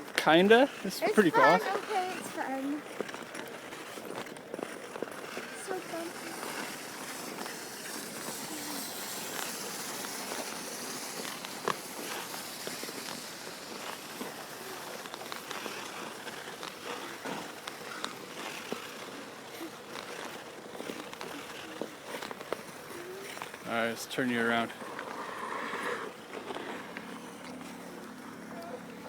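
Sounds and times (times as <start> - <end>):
skate blades hissing on ice: 0.8 - 27.1
clicks and scrapes on ice: 1.7 - 23.8.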